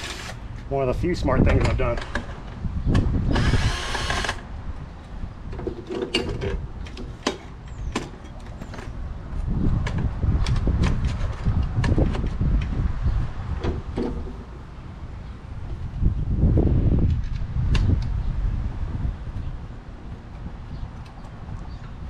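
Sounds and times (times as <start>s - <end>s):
cordless drill driving a screw: 0.0s - 0.4s, 3.3s - 4.4s.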